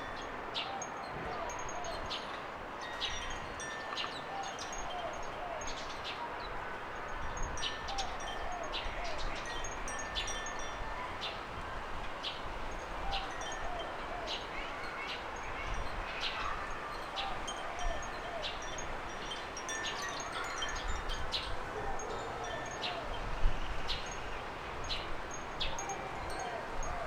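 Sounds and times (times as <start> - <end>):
birds chirping: 13.1 - 27.0.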